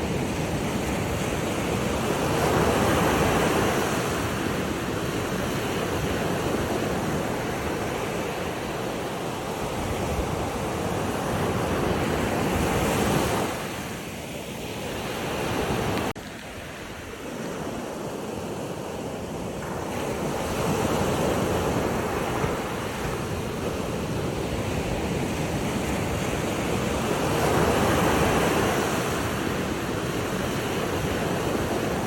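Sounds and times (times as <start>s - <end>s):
ocean surf washing: 0.0s - 32.0s.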